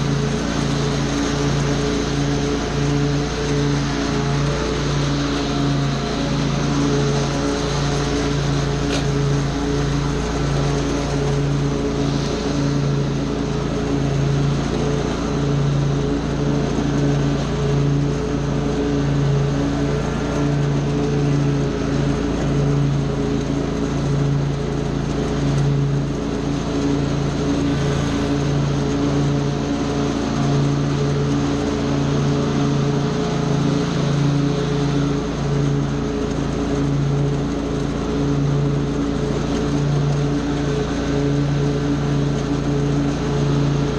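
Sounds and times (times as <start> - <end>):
small gasoline engine running: 0.0 - 43.9.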